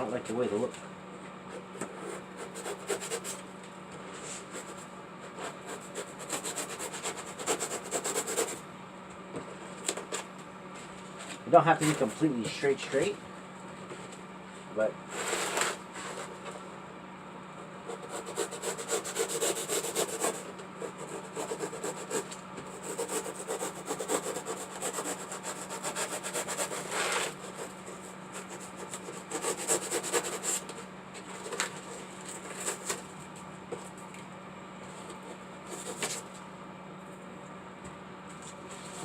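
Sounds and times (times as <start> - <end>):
faint steady hum: 0.0 - 39.0
blade sawing through styrofoam: 1.9 - 3.4, 4.4 - 8.6, 15.1 - 16.3, 17.8 - 33.1, 35.7 - 36.3.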